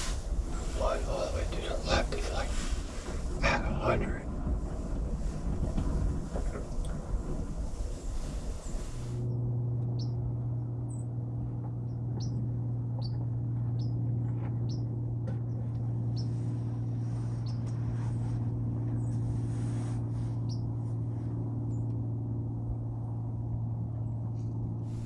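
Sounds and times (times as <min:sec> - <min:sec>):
wind noise: 0:00.0 - 0:10.4
steady low hum: 0:00.0 - 0:25.0
small birds chirping: 0:09.9 - 0:10.2, 0:11.8 - 0:20.8.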